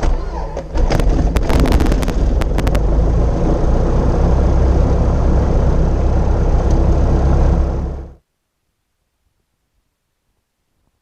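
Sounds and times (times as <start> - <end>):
car engine rumbling: 0.0 - 8.2.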